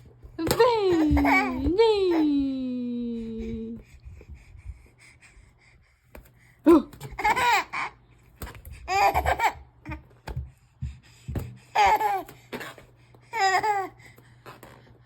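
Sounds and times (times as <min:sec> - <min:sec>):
baby laughing: 0:00.6 - 0:02.2, 0:07.1 - 0:08.0, 0:08.9 - 0:10.0, 0:11.8 - 0:12.3, 0:13.3 - 0:14.0
soft thumps: 0:09.9 - 0:11.7.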